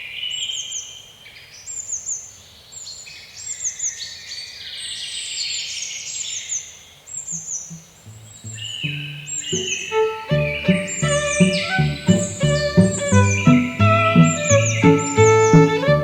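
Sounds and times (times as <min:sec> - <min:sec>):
birds chirping and singing: 0:08.4 - 0:16.0.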